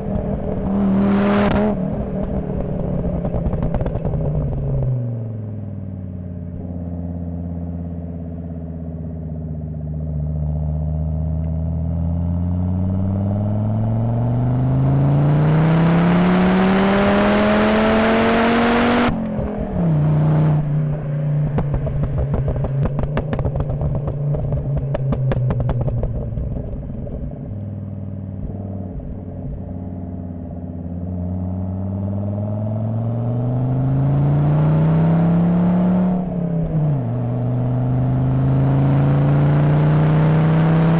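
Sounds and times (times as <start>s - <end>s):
car engine revving: 0.0s - 5.6s, 10.2s - 27.7s, 28.3s - 40.9s
exhaust crackling: 12.9s - 31.3s.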